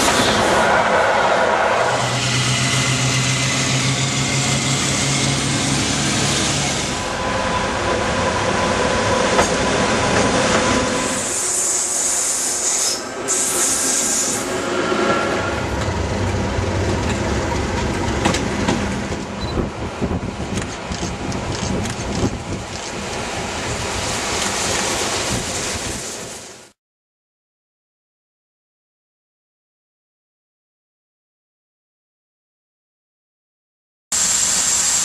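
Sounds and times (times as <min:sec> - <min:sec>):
high-pitched squeal: 0:00.0 - 0:09.3, 0:10.6 - 0:15.8
trains passing at speed: 0:00.0 - 0:26.8, 0:34.1 - 0:35.0
rail clatter: 0:08.5 - 0:11.2, 0:14.8 - 0:26.0.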